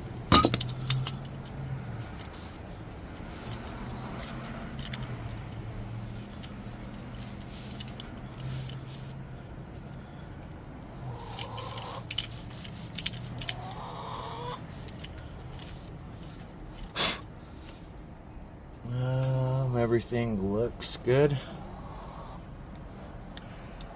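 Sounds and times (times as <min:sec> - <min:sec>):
metal parts clicking: 0:00.3 - 0:02.4, 0:03.5 - 0:05.6, 0:11.1 - 0:13.7.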